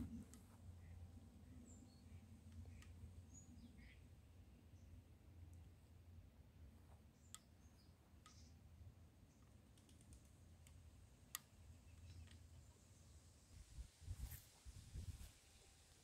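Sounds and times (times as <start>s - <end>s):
faint low outdoor rumble: 0.0s - 16.0s
faint clicks: 2.1s - 4.0s, 7.2s - 8.6s, 9.3s - 12.7s.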